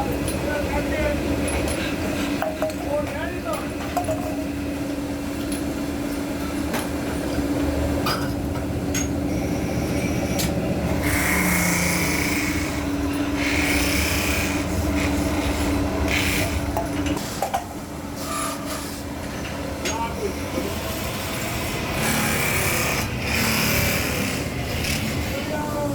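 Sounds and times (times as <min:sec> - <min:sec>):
machine humming: 0:00.0 - 0:25.9.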